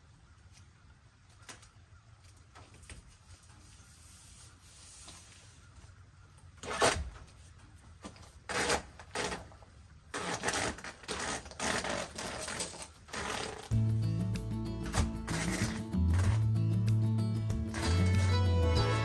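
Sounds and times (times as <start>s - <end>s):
hands rubbing and scraping: 13.2s - 18.4s.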